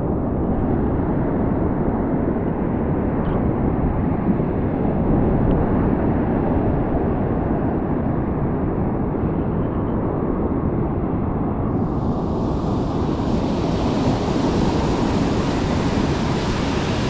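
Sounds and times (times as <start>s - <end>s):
surf: 11.7s - 17.0s
wind buffeting microphone: 11.7s - 17.0s.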